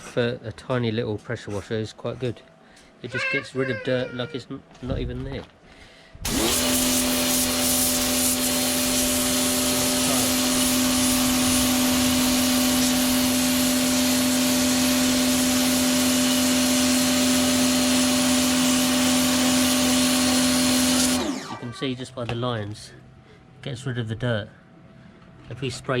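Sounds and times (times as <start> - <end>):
pressure washer motor hum: 6.2 - 21.9
water jet hissing: 6.3 - 21.7.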